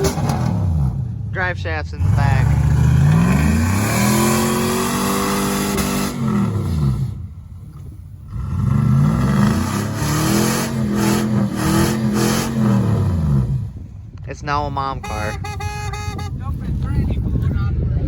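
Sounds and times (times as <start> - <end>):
pickup truck engine revving: 0.0 - 7.3, 8.2 - 13.9.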